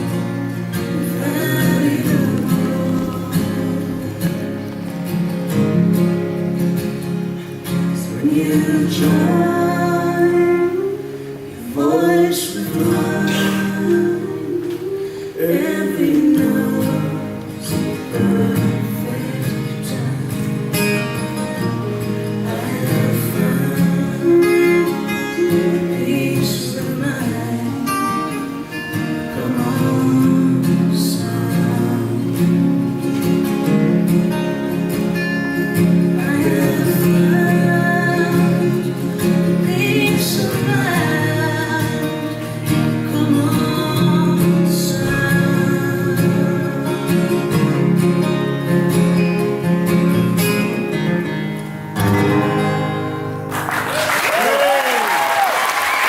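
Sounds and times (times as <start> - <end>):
acoustic guitar: 0.0 - 56.0
person singing: 0.8 - 4.7, 8.0 - 20.6, 21.8 - 33.4, 35.5 - 48.5.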